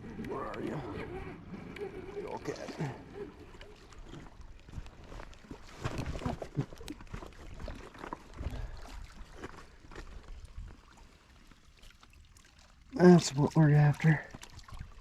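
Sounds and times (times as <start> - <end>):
water splashing and dripping: 2.2 - 15.0.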